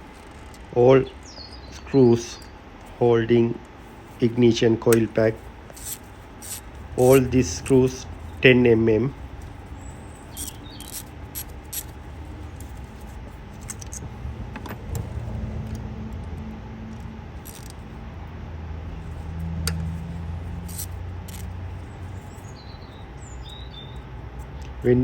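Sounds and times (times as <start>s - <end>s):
low vehicle hum: 0.0s - 25.0s
bird chirping: 1.0s - 2.6s, 9.5s - 11.9s, 21.8s - 24.8s
hand tools clicking and clinking: 10.3s - 14.8s, 17.4s - 17.8s, 20.6s - 21.5s.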